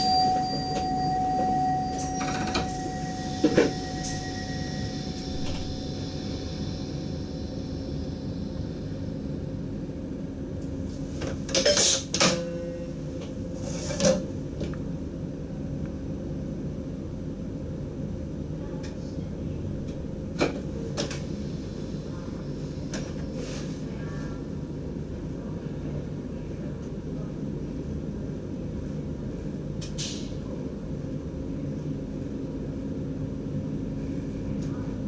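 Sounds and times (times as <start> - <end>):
train cab low hum: 0.0 - 35.0.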